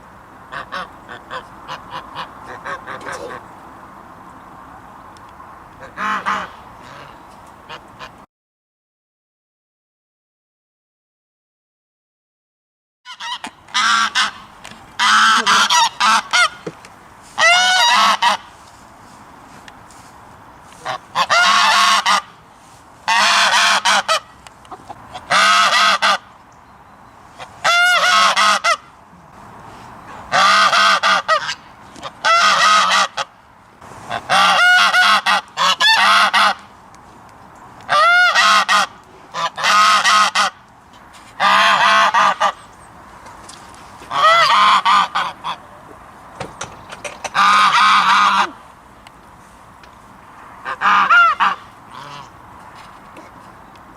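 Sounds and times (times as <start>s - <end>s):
goose honking: 0.5s - 3.4s, 5.8s - 8.2s, 13.1s - 16.7s, 17.4s - 18.5s, 20.8s - 22.4s, 23.0s - 26.3s, 27.4s - 28.9s, 30.3s - 33.4s, 34.0s - 36.7s, 37.9s - 40.6s, 41.4s - 42.6s, 44.0s - 45.8s, 47.2s - 48.6s, 50.6s - 52.4s.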